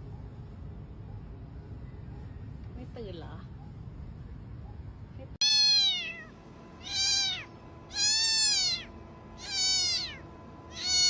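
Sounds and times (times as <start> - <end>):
cat meowing: 5.4 - 11.0.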